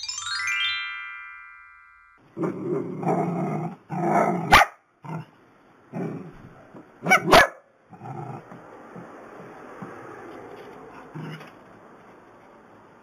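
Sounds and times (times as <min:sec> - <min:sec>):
dog barks: 0:04.1 - 0:05.3, 0:07.0 - 0:07.7
small dogs growling: 0:05.9 - 0:06.5, 0:07.9 - 0:09.1, 0:11.0 - 0:11.5.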